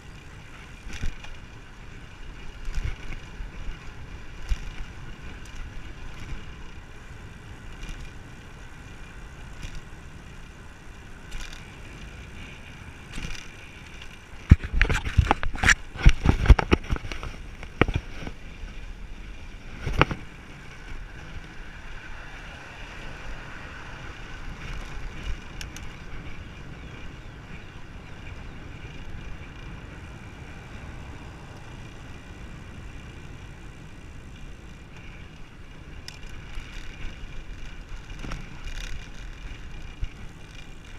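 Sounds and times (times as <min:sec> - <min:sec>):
bicycle tyre and road noise: 0:00.0 - 0:40.9
wind on microphone: 0:14.2 - 0:40.9.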